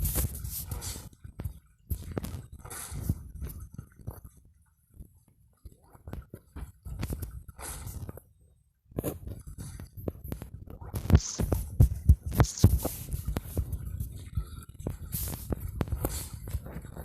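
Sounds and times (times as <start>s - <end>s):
muffled low thuds and knocks: 8.9s - 17.0s.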